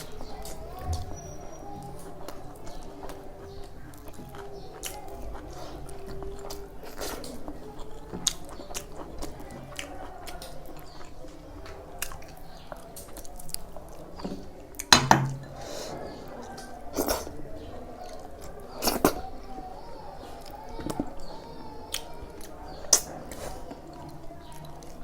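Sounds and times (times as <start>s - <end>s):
chewing and biting food: 1.6s - 15.6s.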